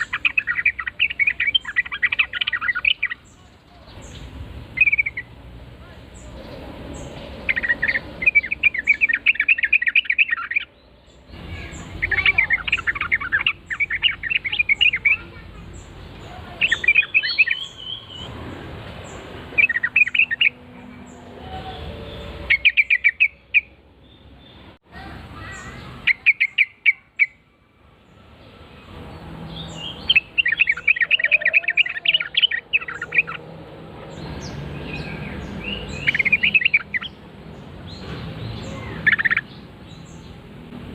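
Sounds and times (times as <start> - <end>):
bird song bubbly chattering: 0.0 - 5.3, 6.2 - 18.3, 19.6 - 20.6, 25.4 - 27.4, 29.6 - 33.4, 34.2 - 37.2, 37.9 - 40.2.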